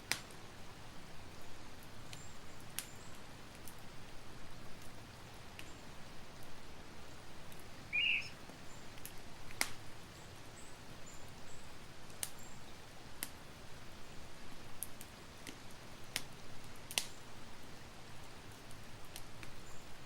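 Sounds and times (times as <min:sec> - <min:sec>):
campfire hissing and crackling: 0:00.0 - 0:20.0
short high chirp: 0:07.9 - 0:08.4.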